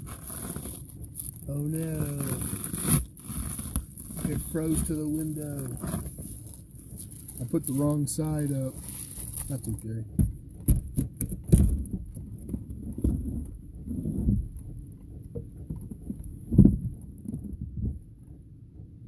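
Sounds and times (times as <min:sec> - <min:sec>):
rustling: 0:00.0 - 0:10.1
dull thumps: 0:00.0 - 0:19.0
low steady rumble: 0:00.0 - 0:19.0.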